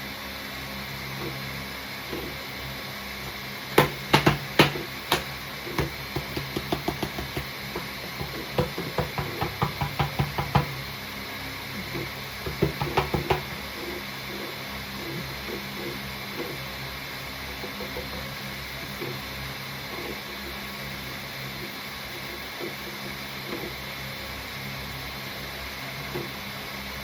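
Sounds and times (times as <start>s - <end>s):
hand noise maker knocks and clicks: 3.8s - 10.8s, 12.4s - 13.6s.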